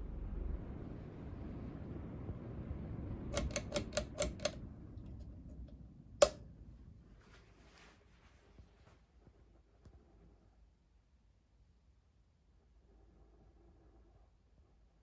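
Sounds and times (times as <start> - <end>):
loud switch click: 3.4 - 4.6, 5.5 - 6.4.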